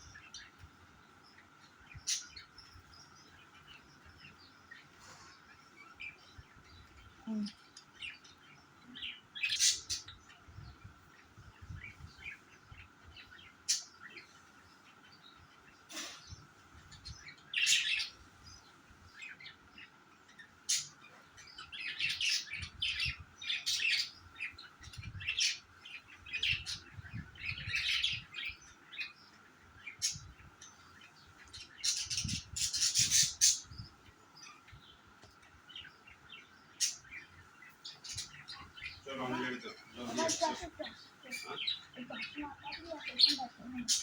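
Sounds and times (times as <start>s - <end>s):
budgerigars chirping: 17.0s - 18.2s, 20.4s - 35.0s.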